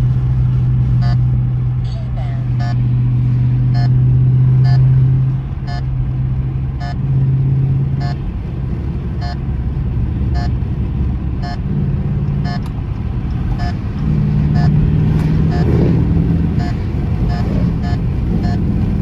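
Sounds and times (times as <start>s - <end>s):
car exhaust droning: 0.0s - 19.0s
sharp ticking: 14.4s - 18.9s.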